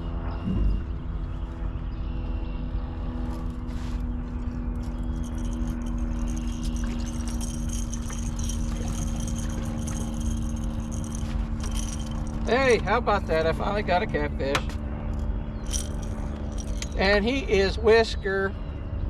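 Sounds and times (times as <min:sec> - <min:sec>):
boat engine hum: 0:00.0 - 0:19.0
rattling and clinking: 0:04.7 - 0:13.4, 0:15.1 - 0:17.1.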